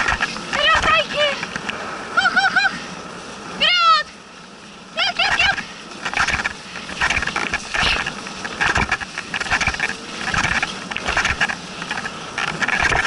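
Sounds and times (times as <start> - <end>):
rhythmic hissing breathing strokes: 4.1 - 13.0.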